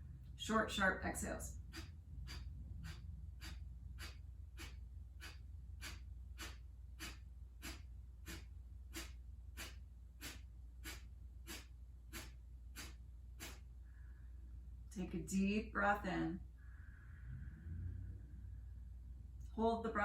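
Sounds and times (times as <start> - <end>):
forceful nasal exhales: 1.7 - 14.3.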